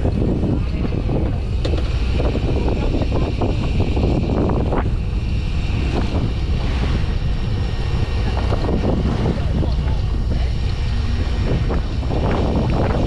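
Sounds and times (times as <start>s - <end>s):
fishing boat engine rumble: 0.0s - 13.0s
wind buffeting microphone: 0.0s - 13.0s.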